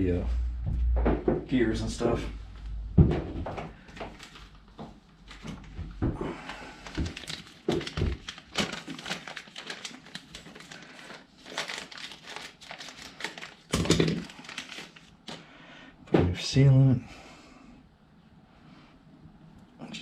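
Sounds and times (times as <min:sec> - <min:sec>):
heavy thump: 0:00.2 - 0:01.9, 0:02.8 - 0:03.8
crinkling handling noises: 0:02.5 - 0:15.6.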